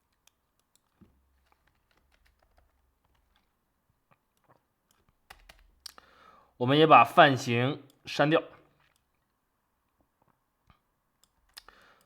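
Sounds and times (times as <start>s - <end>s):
computer keyboard keystrokes: 0.1s - 3.5s, 4.9s - 6.0s.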